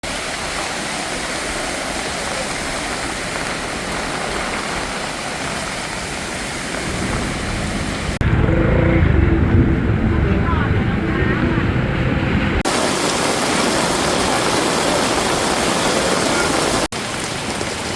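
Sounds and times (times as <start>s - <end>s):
heavy rain falling: 0.0s - 8.2s, 12.6s - 17.9s
deep rumble with steady tones: 6.7s - 12.7s.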